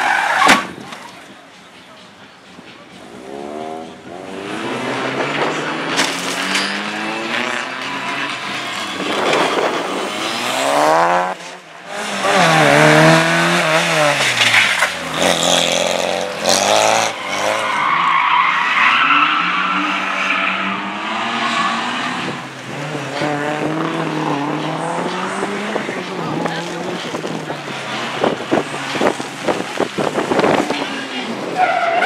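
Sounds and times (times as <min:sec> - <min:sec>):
car engine revving: 0:03.1 - 0:17.9, 0:18.9 - 0:32.0
tyres squealing: 0:30.6 - 0:32.0.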